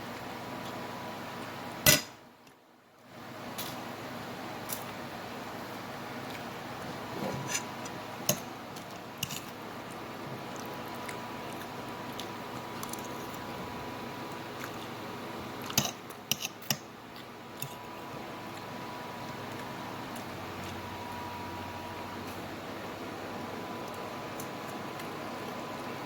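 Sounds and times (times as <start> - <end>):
low background hum: 0.0 - 26.0
fork clicking against plate: 15.7 - 16.9.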